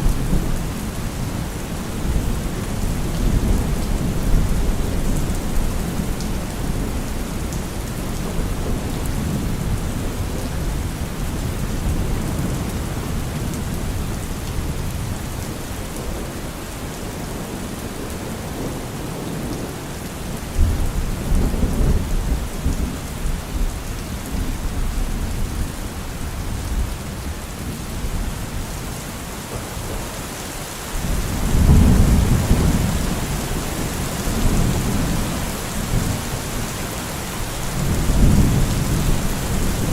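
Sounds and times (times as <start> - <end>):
steady rain falling: 0.0 - 39.9
low thunder rumbling: 31.0 - 36.7, 37.7 - 39.9.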